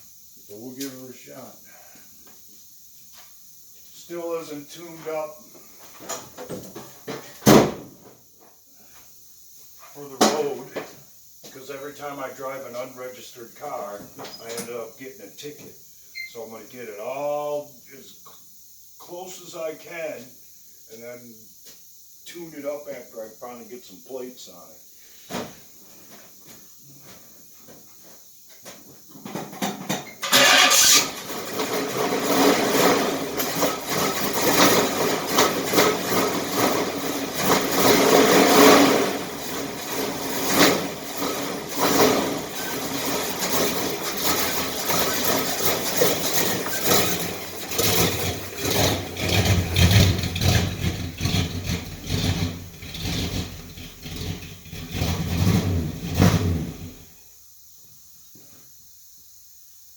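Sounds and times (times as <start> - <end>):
car engine cranking and running: 30.2 - 57.1.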